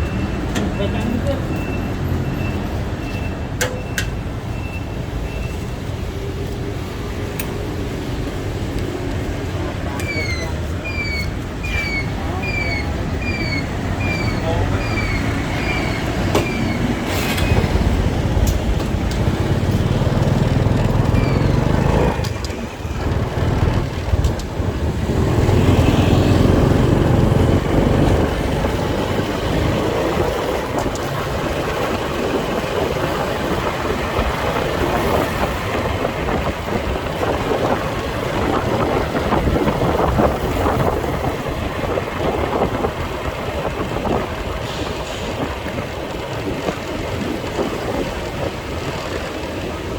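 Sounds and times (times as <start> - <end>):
road and traffic noise: 0.0 - 49.9
motorcycle engine: 13.0 - 44.4.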